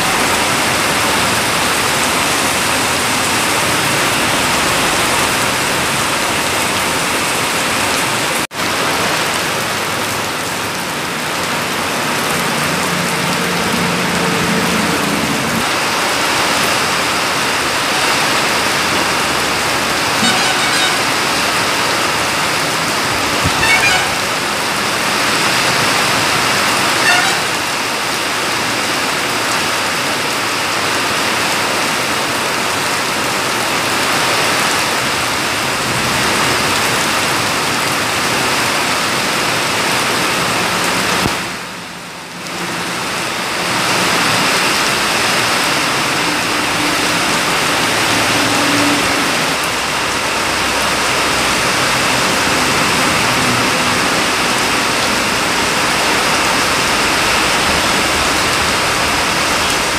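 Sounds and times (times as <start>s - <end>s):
heavy rain pouring: 0.0s - 59.9s
vehicles passing on wet road: 0.0s - 59.9s.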